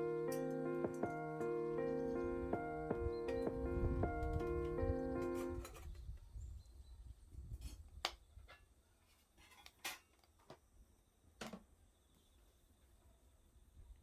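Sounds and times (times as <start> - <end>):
background music: 0.0 - 5.6.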